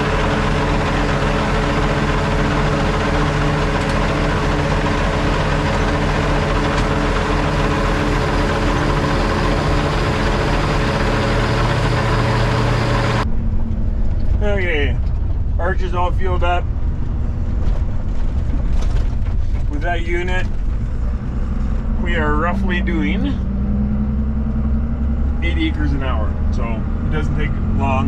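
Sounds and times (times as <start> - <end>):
heavy engine idling: 0.0 - 14.3
deep low tone: 20.7 - 28.0.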